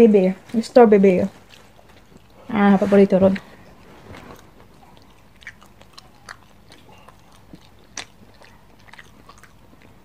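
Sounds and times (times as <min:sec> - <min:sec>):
person chewing meat: 0:01.4 - 0:02.5, 0:03.6 - 0:10.0
mouth clicks and smacks: 0:03.7 - 0:10.0.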